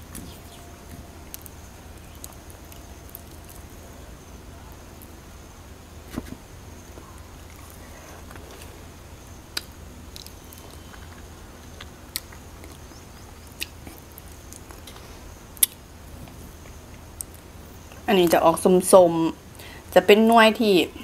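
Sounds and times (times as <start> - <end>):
person chewing fruit: 6.9 - 8.9, 9.5 - 17.5.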